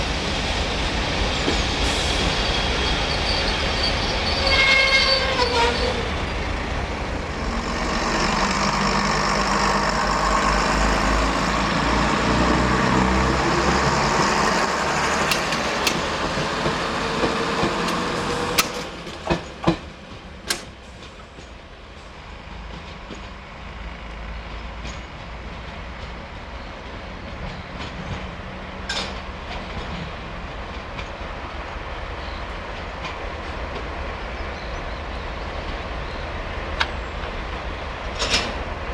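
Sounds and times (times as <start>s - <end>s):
train rumbling past: 0.0s - 38.9s
wheels clicking over rail joints: 13.7s - 21.6s.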